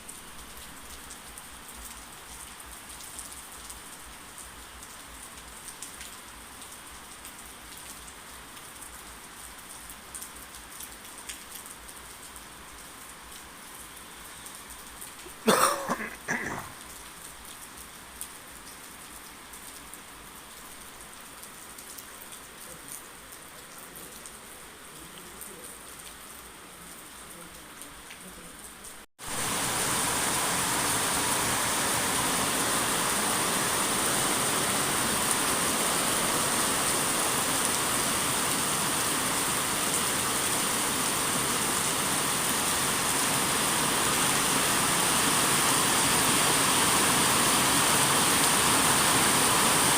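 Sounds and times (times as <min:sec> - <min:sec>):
steady rain: 0:00.0 - 0:49.9.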